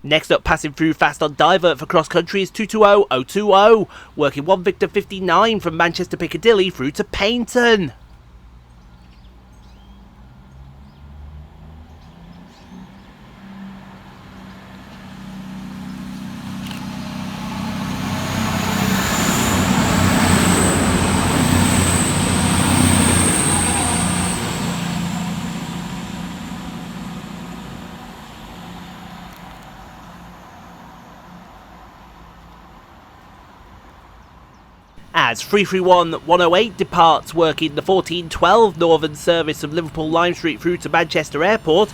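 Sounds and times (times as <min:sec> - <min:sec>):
diesel train passing at speed: 0:12.8 - 0:34.4.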